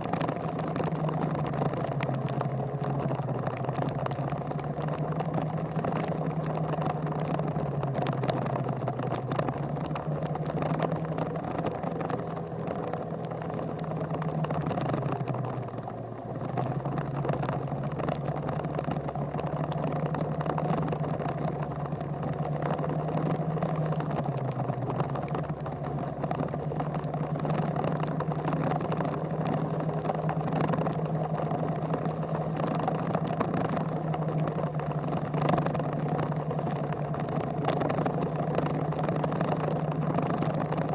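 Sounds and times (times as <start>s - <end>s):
vehicle engine running: 0.0s - 40.9s
wind or road noise hiss: 0.0s - 40.9s.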